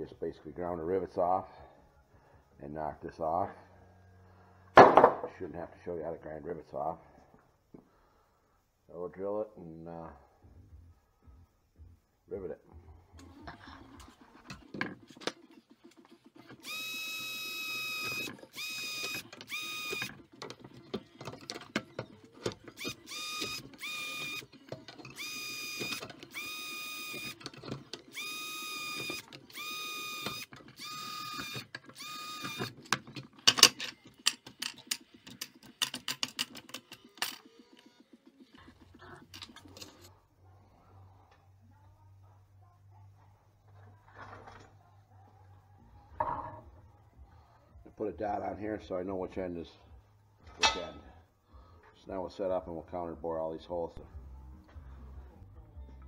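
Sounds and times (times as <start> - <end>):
electric drill whining: 16.4 - 33.0
handling clicks and knocks: 32.6 - 37.5.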